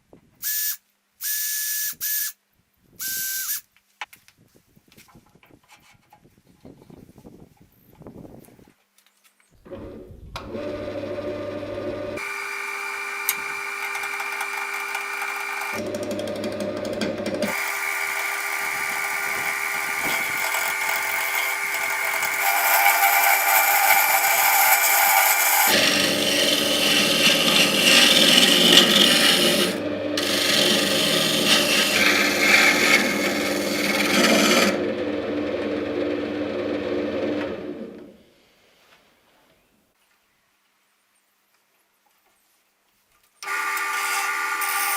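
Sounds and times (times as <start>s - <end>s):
electric power tool humming: 10.4s - 38.0s, 43.4s - 44.9s.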